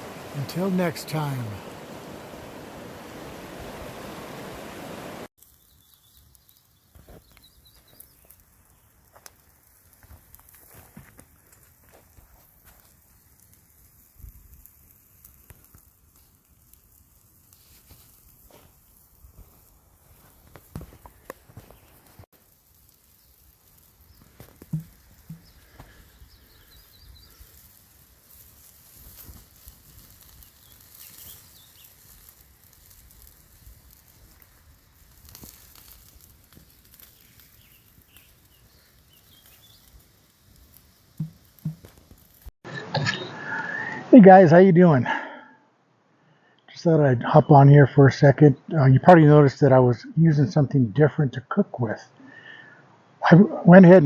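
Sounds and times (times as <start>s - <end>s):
rushing river water: 0.0s - 5.3s
small birds chirping: 4.0s - 14.4s, 17.4s - 44.0s
faint high chirps: 37.1s - 40.0s.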